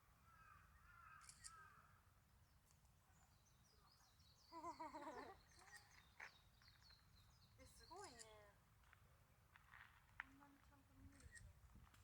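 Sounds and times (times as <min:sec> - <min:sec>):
small birds chirping faintly: 0:02.4 - 0:08.6.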